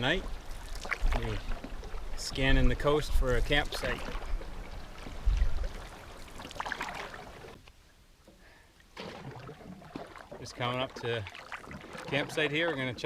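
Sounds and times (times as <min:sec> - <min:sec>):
paddle strokes in water: 0:00.0 - 0:13.0
water splashing and trickling: 0:00.0 - 0:13.0
wind gust on microphone: 0:05.2 - 0:05.7.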